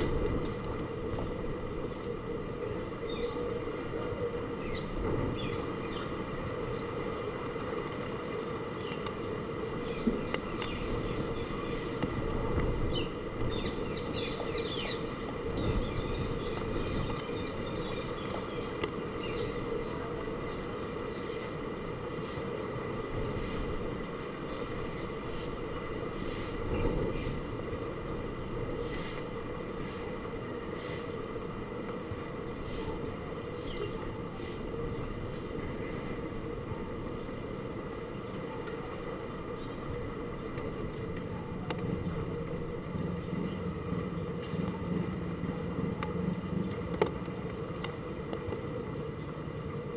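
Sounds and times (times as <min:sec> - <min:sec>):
heavy rain and wind: 0:00.0 - 0:49.9
birds chirping: 0:12.9 - 0:21.2.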